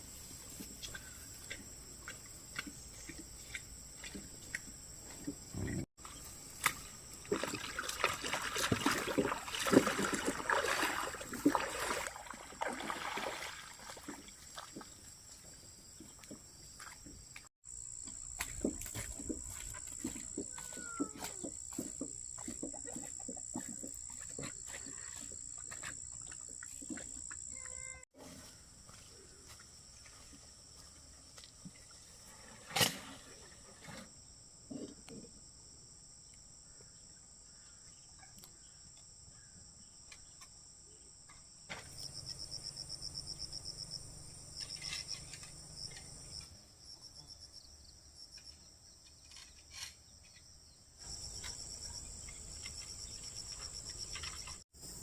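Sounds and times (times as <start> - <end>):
insects chirring: 0.0 - 55.0.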